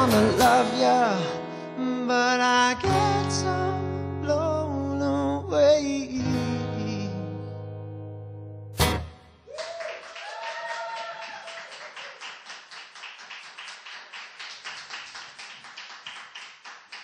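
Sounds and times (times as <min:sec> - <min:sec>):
small audience clapping: 0:09.4 - 0:17.0
person whooping: 0:09.5 - 0:12.2.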